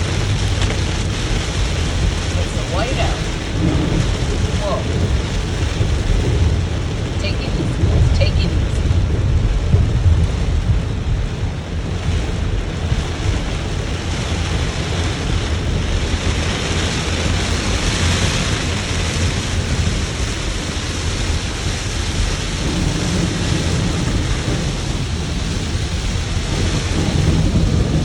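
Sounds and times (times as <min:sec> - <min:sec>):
rain pelting a car: 0:00.0 - 0:28.0
road and wind rumble: 0:00.0 - 0:28.0.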